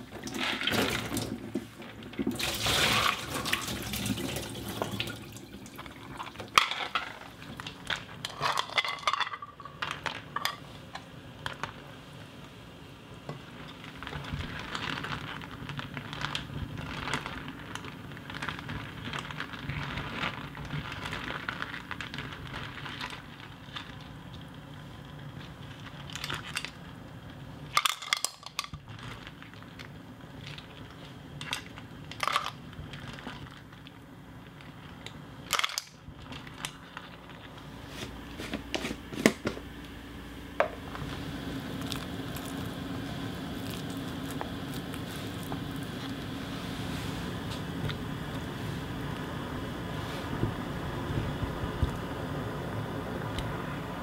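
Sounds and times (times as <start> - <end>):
clam shells clattering in a bowl: 6.4 - 10.6, 27.7 - 33.9, 34.5 - 37.4.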